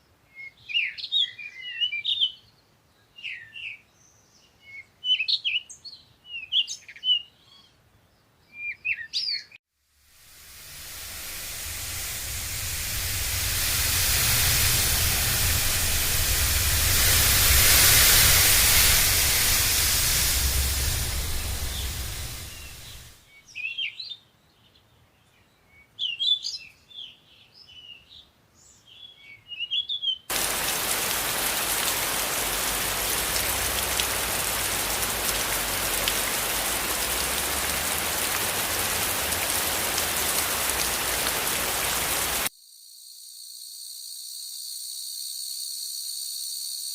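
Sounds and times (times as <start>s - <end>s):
steady rushing noise: 10.0s - 23.2s, 30.3s - 42.5s
birds chirping: 30.3s - 42.4s.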